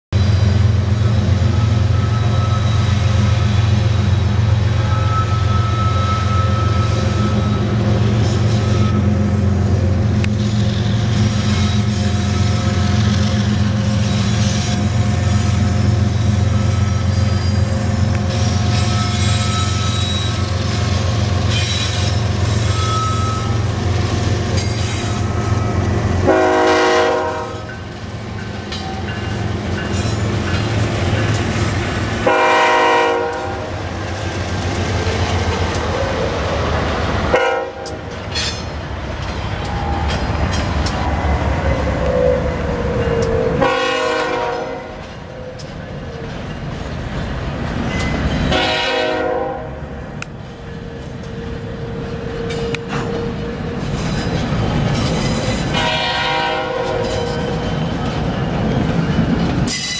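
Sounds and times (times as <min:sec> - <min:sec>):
diesel locomotive engines rumbling: 0:00.1 - 0:59.9
wavering wheel squeal: 0:01.5 - 0:03.6, 0:04.7 - 0:09.6, 0:11.4 - 0:26.1, 0:39.5 - 0:43.7
train horn blasts: 0:25.2 - 0:27.8, 0:32.2 - 0:33.8, 0:37.3 - 0:38.0, 0:43.6 - 0:45.0, 0:48.5 - 0:49.8, 0:55.7 - 0:57.5.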